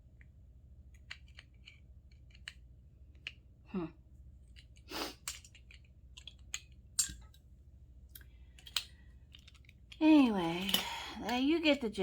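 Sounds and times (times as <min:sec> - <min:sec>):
metal parts clicking and tapping: 0:00.9 - 0:03.4, 0:04.4 - 0:07.4, 0:08.1 - 0:11.6.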